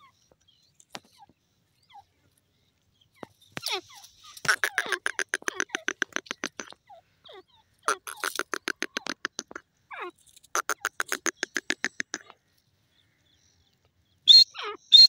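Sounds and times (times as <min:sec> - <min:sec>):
francolin calling: 0:03.2 - 0:12.4, 0:14.3 - 0:15.0.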